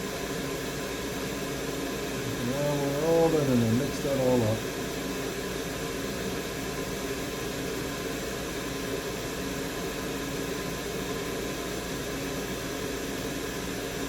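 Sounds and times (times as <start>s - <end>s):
fan airflow hiss: 0.0s - 14.0s.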